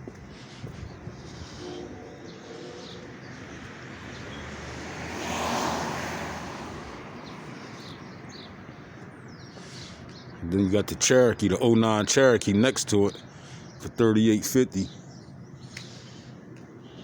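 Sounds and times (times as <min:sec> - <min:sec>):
vehicle passing: 0:00.0 - 0:11.3
steady traffic hum: 0:00.0 - 0:17.0.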